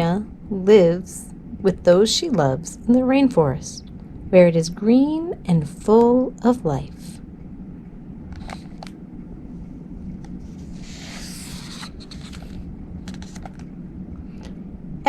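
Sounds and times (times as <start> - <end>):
low room hum: 0.0 - 15.0
paper page rustling: 10.4 - 13.7.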